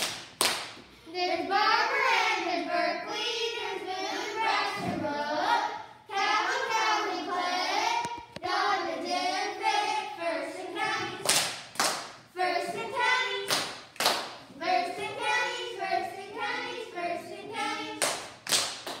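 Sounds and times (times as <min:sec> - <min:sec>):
hand claps: 0:00.0 - 0:00.9, 0:11.2 - 0:12.2, 0:13.5 - 0:14.4, 0:18.0 - 0:19.0
children singing in unison: 0:01.1 - 0:11.3, 0:12.4 - 0:13.5, 0:14.6 - 0:18.2.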